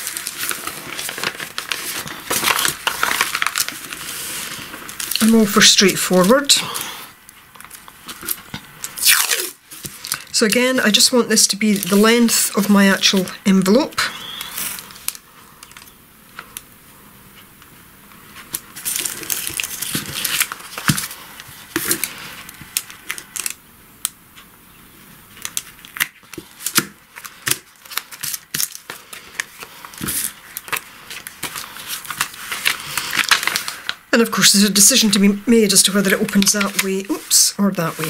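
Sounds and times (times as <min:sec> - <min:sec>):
masking tape ripping off roll: 0:08.2 - 0:10.2.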